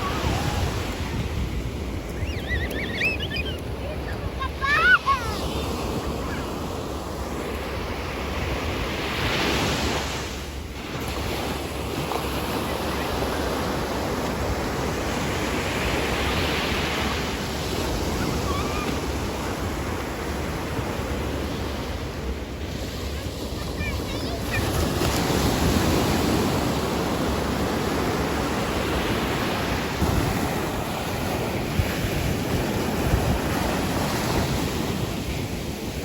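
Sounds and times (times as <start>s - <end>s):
wind buffeting microphone: 0.0s - 5.3s
waves breaking: 0.0s - 36.0s.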